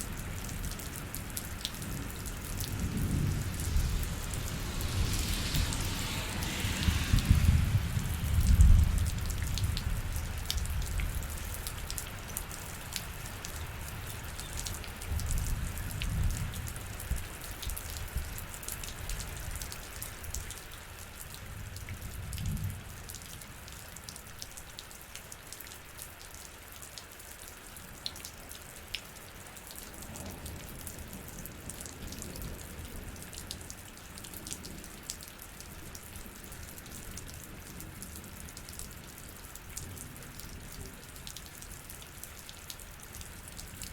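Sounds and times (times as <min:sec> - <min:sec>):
raindrops ticking on a surface: 0:00.0 - 0:43.9
low rumbling: 0:01.7 - 0:10.1.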